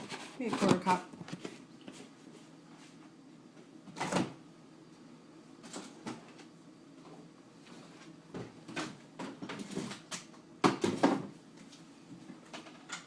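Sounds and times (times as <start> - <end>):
kitchen knocks and clatters: 0.0 - 1.6, 8.3 - 11.4.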